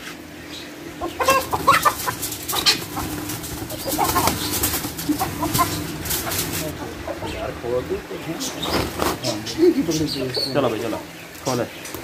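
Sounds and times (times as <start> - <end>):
birds clucking and squawking: 0.2 - 12.0
wings flapping: 1.0 - 7.6, 8.4 - 9.6.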